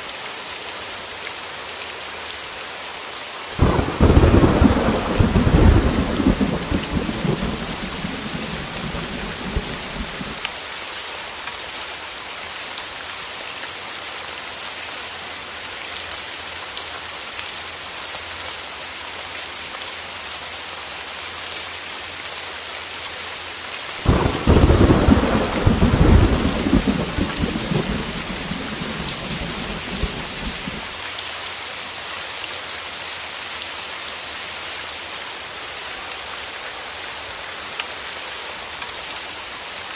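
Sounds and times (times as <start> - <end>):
heavy rain on a window: 0.1 - 13.0, 14.2 - 39.9
thunder rumbling: 3.6 - 10.4, 24.0 - 30.9.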